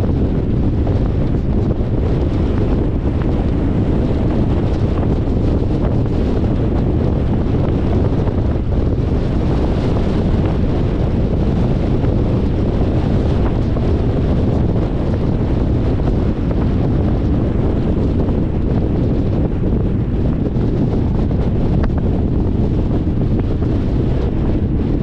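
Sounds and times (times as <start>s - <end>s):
car road rumble: 0.0s - 25.0s
wind rushing over microphone: 0.0s - 25.0s.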